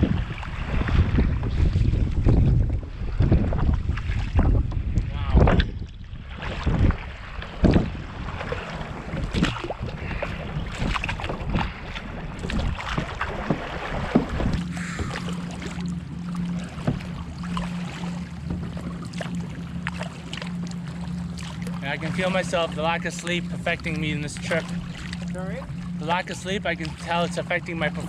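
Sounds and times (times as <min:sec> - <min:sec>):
wind buffeting microphone: 0:00.0 - 0:19.2
paddle strokes: 0:00.0 - 0:28.0
steady low hum: 0:00.0 - 0:28.0
water slapping against hull: 0:00.0 - 0:28.0.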